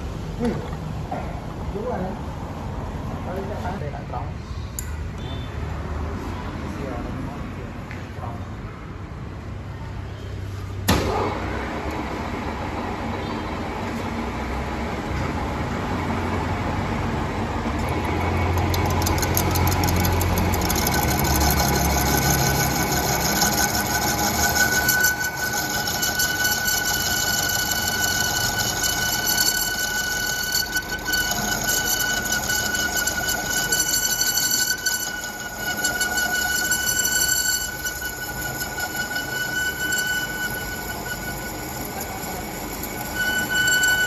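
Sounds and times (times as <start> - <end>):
steady high whine: 11.1 - 44.0
metal lathe humming: 11.8 - 44.0
fast rhythmic scraping: 17.8 - 44.0.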